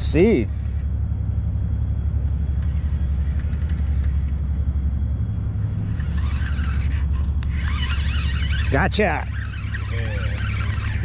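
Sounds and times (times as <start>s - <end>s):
large machinery engine rumbling: 0.0s - 11.0s.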